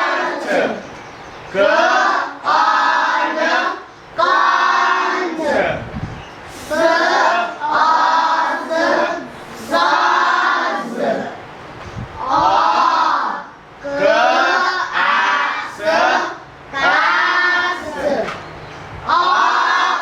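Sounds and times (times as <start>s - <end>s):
children chanting in unison: 0.0s - 11.5s, 12.2s - 20.0s.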